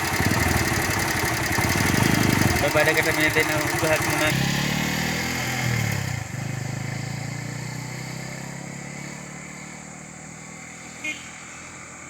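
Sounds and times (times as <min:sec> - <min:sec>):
vehicle engine running: 0:00.0 - 0:06.4.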